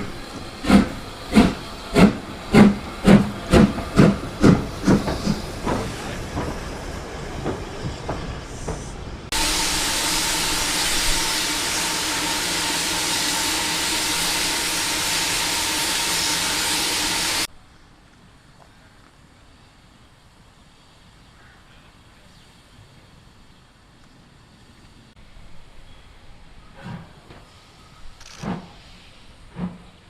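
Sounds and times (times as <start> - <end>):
loud hiss of escaping steam: 0.0 - 17.5, 24.5 - 30.0
steam locomotive exhaust beats: 0.0 - 17.5, 25.3 - 30.0.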